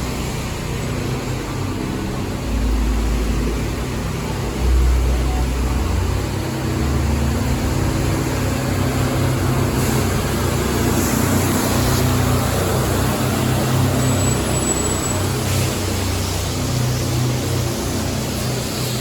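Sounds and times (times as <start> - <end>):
street noise: 0.0 - 19.0
vehicle engine humming: 0.0 - 19.0.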